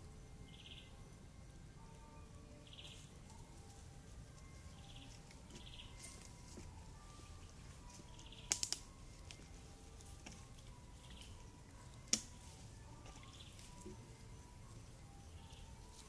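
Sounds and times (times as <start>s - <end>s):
faint distant bird notes: 0.0s - 16.0s
sharp clicks: 8.4s - 8.9s.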